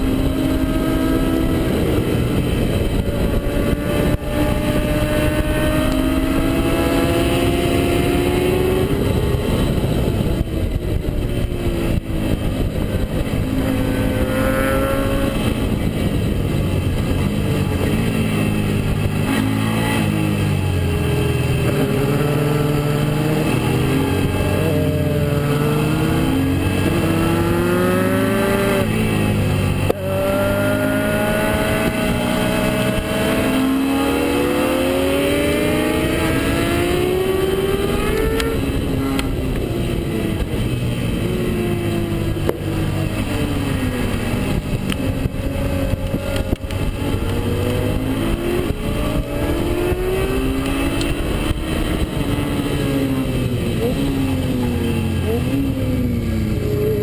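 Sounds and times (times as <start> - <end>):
motorcycle engine revving: 0.0 - 57.0
wind rush: 0.0 - 57.0.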